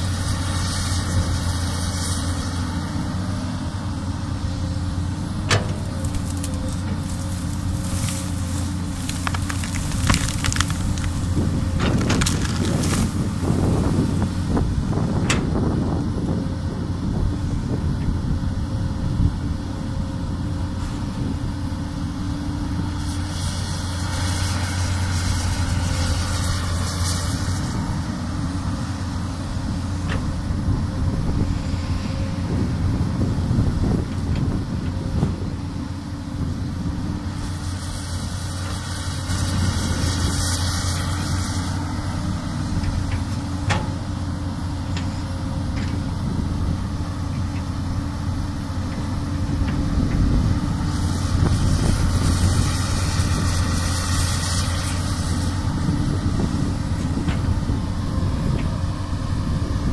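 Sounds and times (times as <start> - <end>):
excavator diesel engine running: 0.0 - 59.9
hiss: 23.0 - 27.8, 37.3 - 41.9, 50.8 - 55.9.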